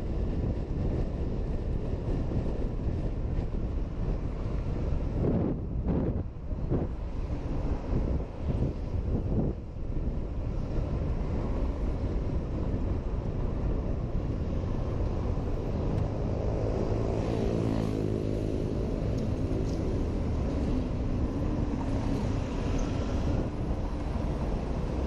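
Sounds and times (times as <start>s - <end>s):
wind and road rush: 0.0s - 25.0s
passing vehicle engine: 10.4s - 25.0s.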